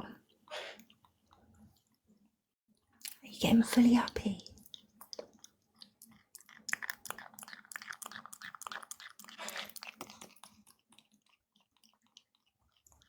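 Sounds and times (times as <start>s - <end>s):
parrot beak clicks and chewing: 4.4s - 13.0s.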